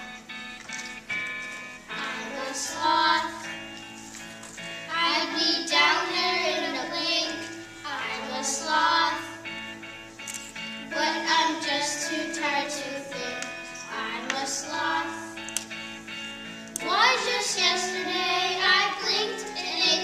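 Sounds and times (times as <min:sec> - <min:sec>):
instrumental backing music: 0:00.0 - 0:20.0
children singing: 0:02.0 - 0:03.5, 0:04.9 - 0:09.5, 0:10.9 - 0:15.4, 0:16.8 - 0:20.0.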